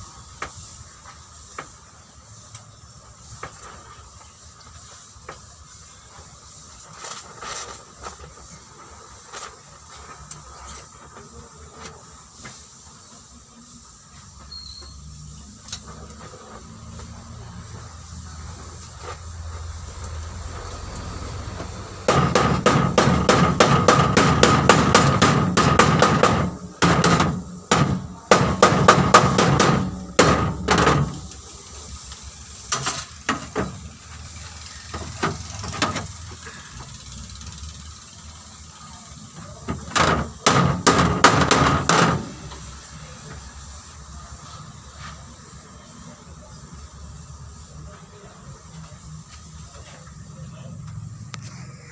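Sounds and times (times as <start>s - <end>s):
hammer on sheet metal: 22.0s - 31.3s, 39.7s - 42.5s.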